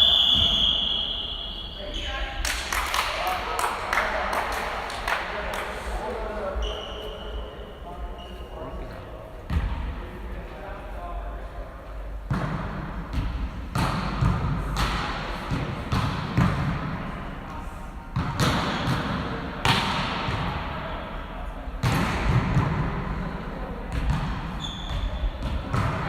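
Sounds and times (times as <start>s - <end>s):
volleyball striking and bouncing: 12.2s - 17.1s, 18.1s - 20.7s, 21.8s - 23.2s, 23.8s - 26.0s.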